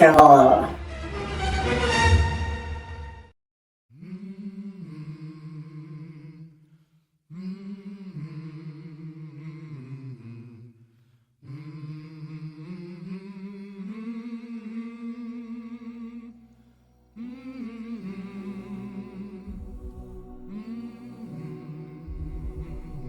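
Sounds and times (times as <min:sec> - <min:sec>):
low voice humming a slow tune: 0:17.2 - 0:23.0.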